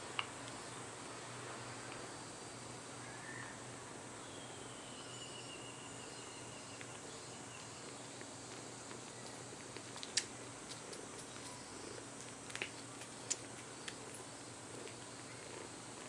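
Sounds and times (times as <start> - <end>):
kitten purring: 6.8 - 16.0
wet sucking clicks: 8.5 - 11.6, 12.2 - 14.2.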